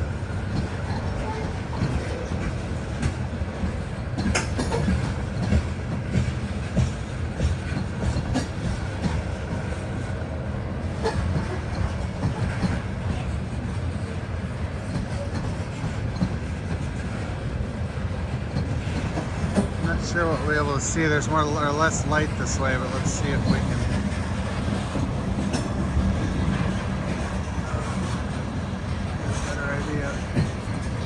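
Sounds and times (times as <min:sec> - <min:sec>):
freight train rumbling past: 0:00.0 - 0:31.0
wheels clacking on rails: 0:00.0 - 0:31.0.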